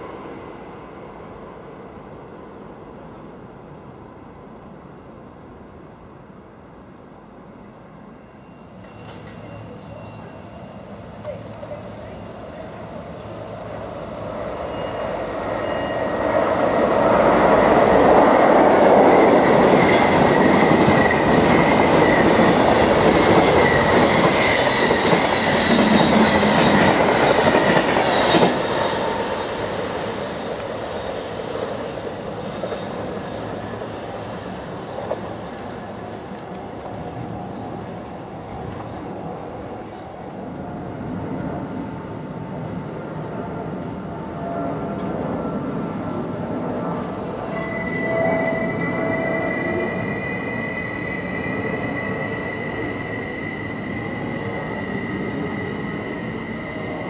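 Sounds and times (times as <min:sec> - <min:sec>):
train wheels rumbling on rail: 0:08.8 - 0:39.2
high wheel squeal: 0:12.0 - 0:18.1, 0:40.8 - 0:57.0.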